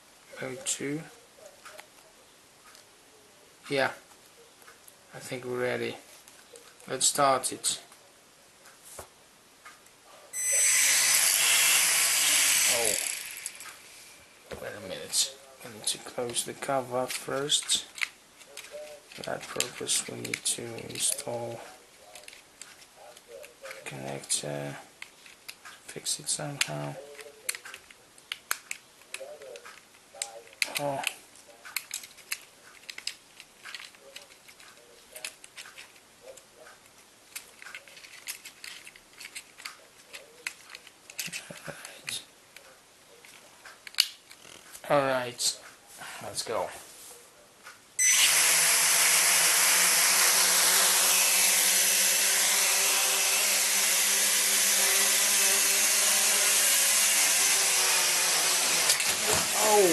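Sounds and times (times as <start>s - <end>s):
small plastic parts clicking: 17.0s - 24.4s, 25.0s - 25.8s, 26.5s - 44.7s.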